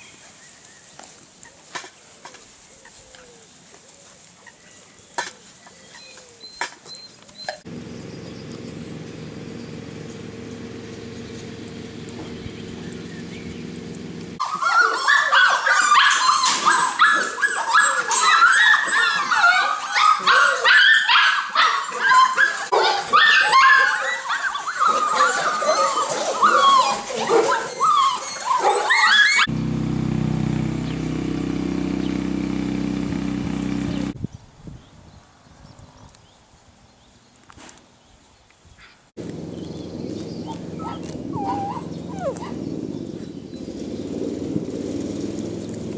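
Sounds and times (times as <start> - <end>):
steady low hum: 7.7 - 14.4, 29.5 - 34.2, 39.2 - 45.9
puppies yipping and whimpering: 14.4 - 29.5, 39.3 - 43.6.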